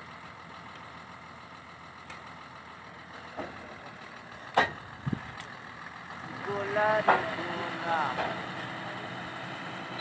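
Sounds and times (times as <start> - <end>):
steady machinery noise: 3.1 - 10.0.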